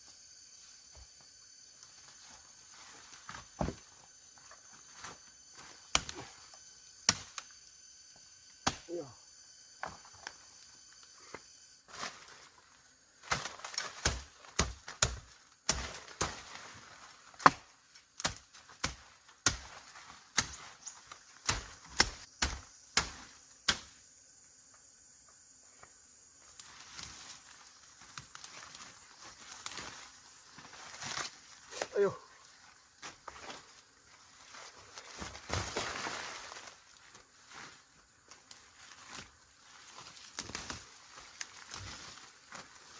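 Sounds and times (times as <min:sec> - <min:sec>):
hand tool chopping: 0:13.3 - 0:16.6, 0:17.4 - 0:20.7, 0:21.4 - 0:23.9.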